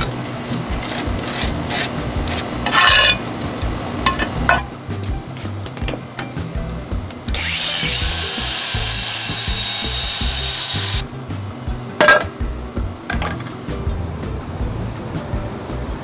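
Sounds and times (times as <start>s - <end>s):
background music: 0.0s - 16.0s
power saw cutting tile: 7.3s - 11.0s.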